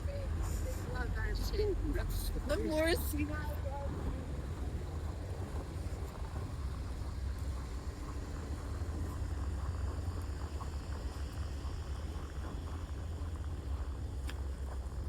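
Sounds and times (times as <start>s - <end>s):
city traffic: 0.0s - 5.3s
wind: 0.0s - 15.0s.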